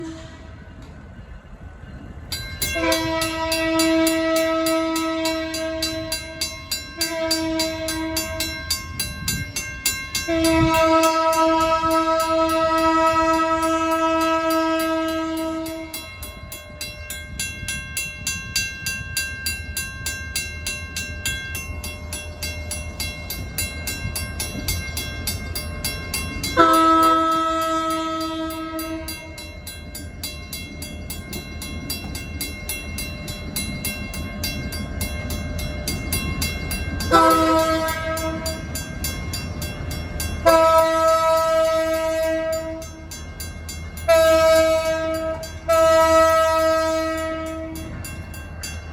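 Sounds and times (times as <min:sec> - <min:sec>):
locomotive horn blasts: 0:00.0 - 0:00.6, 0:02.7 - 0:08.6, 0:10.2 - 0:16.1, 0:26.5 - 0:29.5, 0:37.0 - 0:38.7, 0:40.4 - 0:43.1, 0:44.0 - 0:48.0
low rumble of train: 0:00.0 - 0:48.9
crossing bell ringing rapidly: 0:01.8 - 0:48.9.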